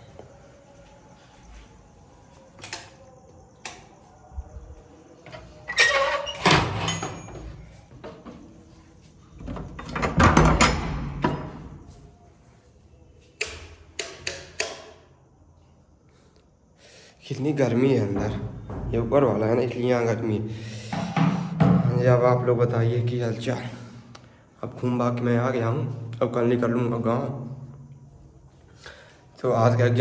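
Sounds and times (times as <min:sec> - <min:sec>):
doors opening and shutting: 0:02.5 - 0:08.7, 0:09.3 - 0:12.0.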